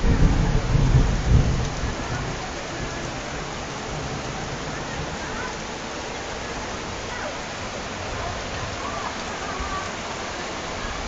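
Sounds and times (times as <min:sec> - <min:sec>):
low thunder rumble: 0:00.0 - 0:07.2
heavy rain falling: 0:00.0 - 0:11.0.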